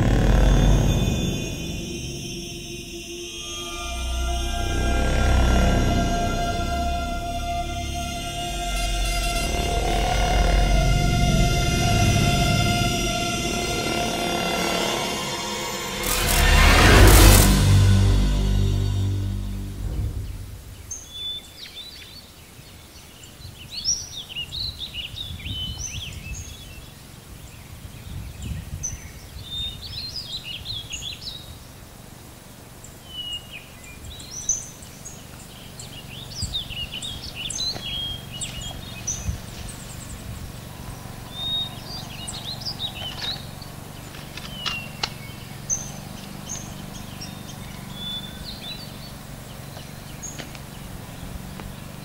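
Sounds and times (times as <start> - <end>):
low rumble: 0.0 - 21.1
songbirds chirping: 18.6 - 52.0.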